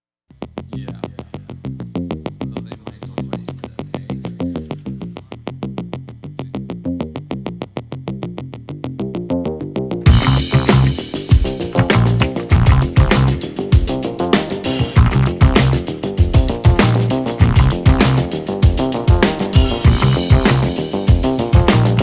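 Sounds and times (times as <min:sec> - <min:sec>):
drums: 0:00.3 - 0:05.7, 0:10.0 - 0:22.0
electronic synthesizer music: 0:10.1 - 0:22.0.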